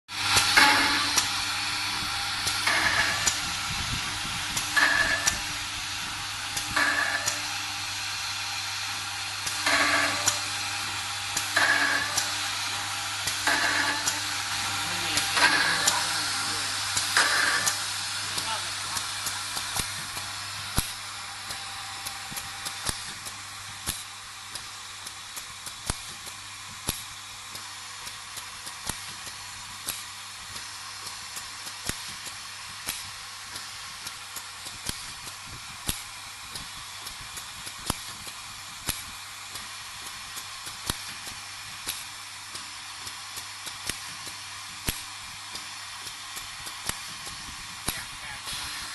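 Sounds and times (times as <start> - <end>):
machine hissing and humming: 0.1 - 48.9
machine sharp knock: 0.4 - 1.3, 2.5 - 3.5, 4.6 - 5.5, 6.6 - 7.6, 9.6 - 10.5, 11.4 - 12.4, 13.4 - 14.2, 15.2 - 16.0, 17.0 - 17.8.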